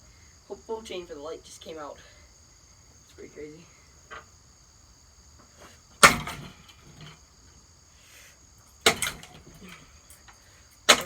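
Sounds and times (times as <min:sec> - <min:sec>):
crickets trilling: 0:00.0 - 0:11.0
hammer striking ceiling fan: 0:06.0 - 0:07.1, 0:08.8 - 0:09.8.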